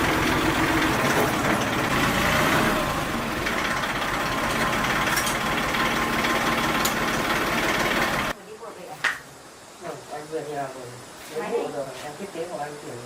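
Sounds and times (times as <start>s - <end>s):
truck engine idling: 0.0s - 8.3s.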